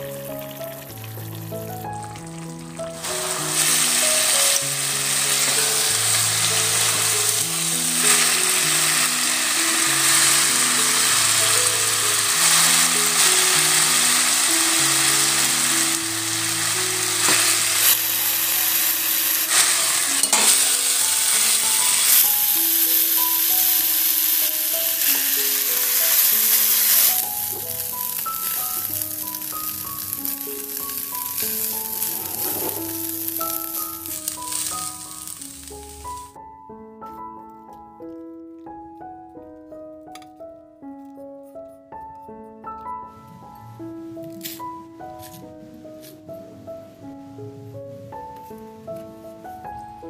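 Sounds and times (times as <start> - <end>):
chicken sizzling in a wok: 0.0 - 36.4
soft background melody: 0.0 - 50.0.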